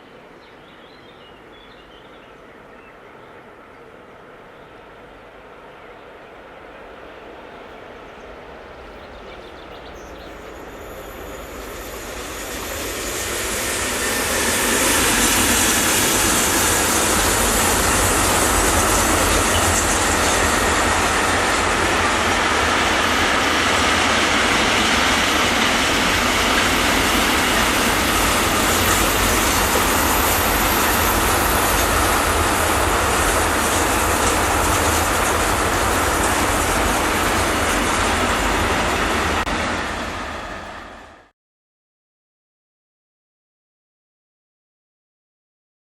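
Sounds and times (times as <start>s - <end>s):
train wheels rushing on rail: 4.8s - 41.3s.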